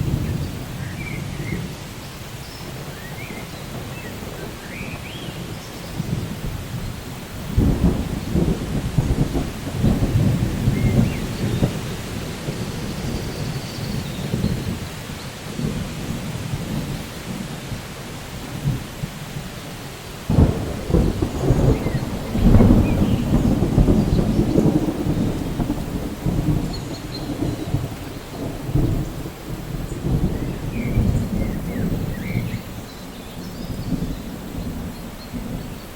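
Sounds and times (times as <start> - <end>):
rolling thunder: 0.0 - 1.8, 2.7 - 35.9
steady rain: 0.0 - 35.9.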